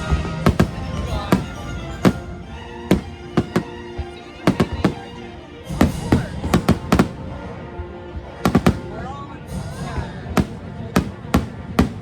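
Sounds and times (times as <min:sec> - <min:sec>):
fireworks exploding: 0:00.0 - 0:07.4, 0:08.4 - 0:09.0, 0:10.2 - 0:12.0.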